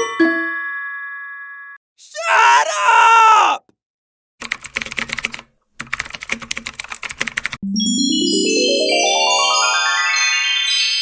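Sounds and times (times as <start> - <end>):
high chiming tones: 7.6 - 11.0
rising bell-like synth notes: 7.6 - 11.0.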